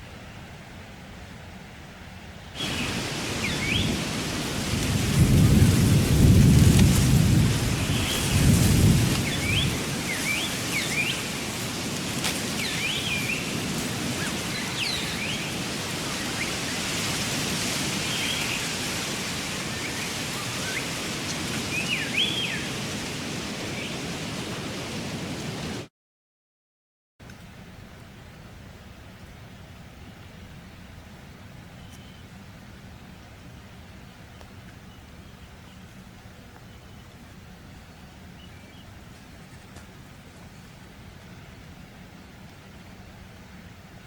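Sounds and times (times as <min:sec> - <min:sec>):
low roll of thunder: 0:02.6 - 0:10.1
steady rain: 0:02.6 - 0:25.9, 0:27.4 - 0:44.0.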